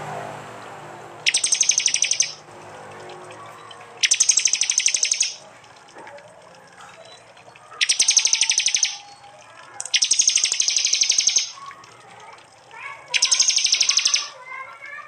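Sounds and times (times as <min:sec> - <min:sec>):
bird chattering call: 0:01.2 - 0:02.4, 0:04.0 - 0:05.4, 0:07.8 - 0:09.0, 0:09.8 - 0:11.6, 0:13.1 - 0:14.4.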